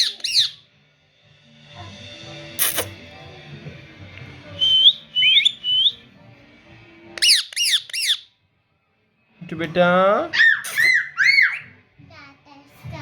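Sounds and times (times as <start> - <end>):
parrot harsh screeches: 0.0 - 0.6, 7.2 - 8.3, 10.3 - 11.8
parrot whistled chirps: 0.0 - 0.6, 4.6 - 6.0, 7.2 - 8.3, 10.3 - 11.8.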